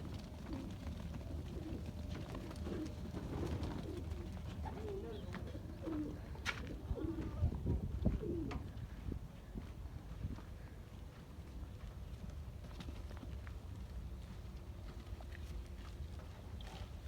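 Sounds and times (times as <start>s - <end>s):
dove cooing: 0.0s - 8.8s.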